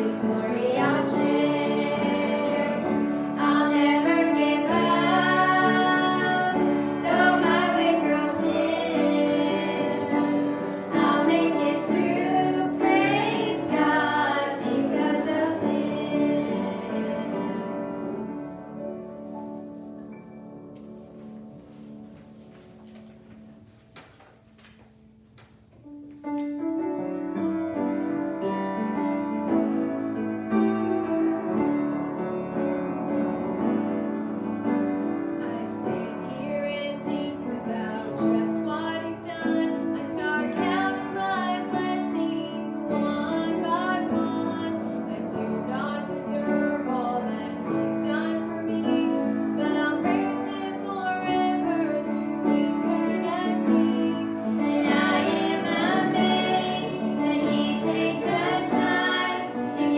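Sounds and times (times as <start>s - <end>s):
woman singing: 0.0s - 10.3s, 35.4s - 59.9s
piano accompaniment: 0.0s - 59.9s.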